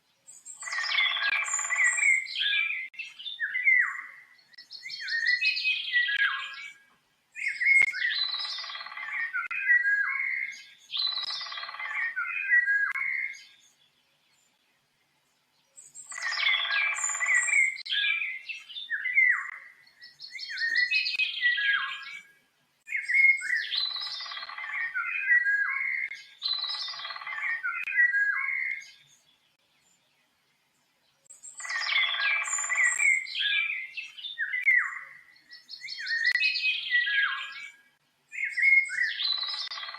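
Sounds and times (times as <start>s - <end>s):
songbird warbling: 0.4s - 6.8s, 7.4s - 13.6s, 15.8s - 22.3s, 22.9s - 29.1s, 31.3s - 39.9s.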